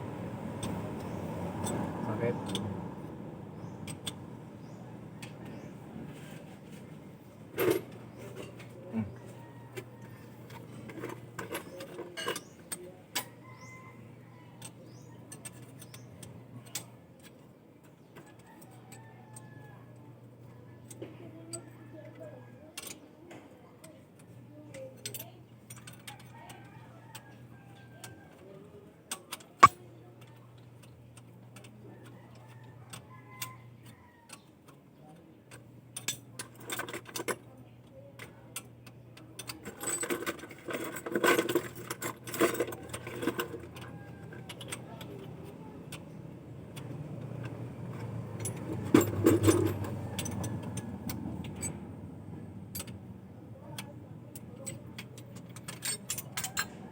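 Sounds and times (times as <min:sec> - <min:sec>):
metallic clicking and clinking: 0:39.4 - 0:45.3, 0:46.8 - 0:51.8, 0:53.8 - 0:56.8.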